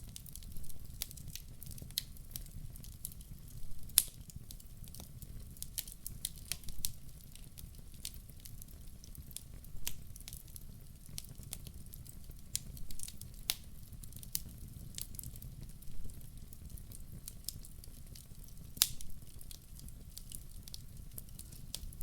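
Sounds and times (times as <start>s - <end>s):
fire crackling and popping: 0.0s - 22.0s.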